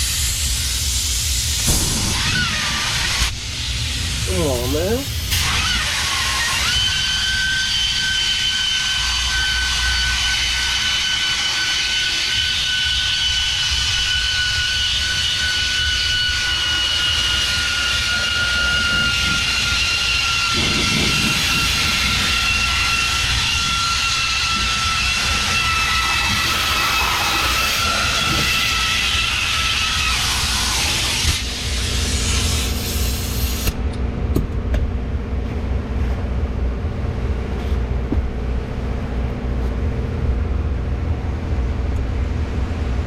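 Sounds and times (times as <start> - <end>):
power tool whining: 1.6 - 33.8.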